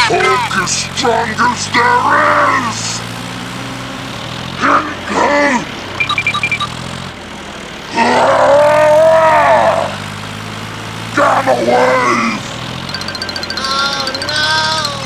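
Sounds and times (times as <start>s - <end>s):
low engine hum: 0.0s - 15.0s
cow mooing: 7.9s - 10.0s.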